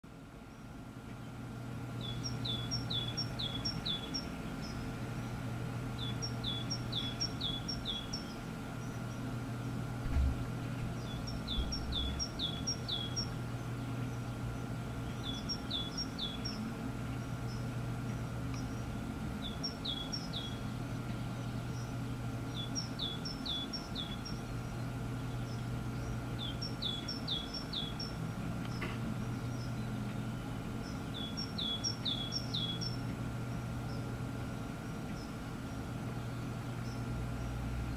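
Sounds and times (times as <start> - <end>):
steady low hum: 0.0 - 37.9
songbird singing: 0.1 - 37.9
soft thump: 10.0 - 10.5.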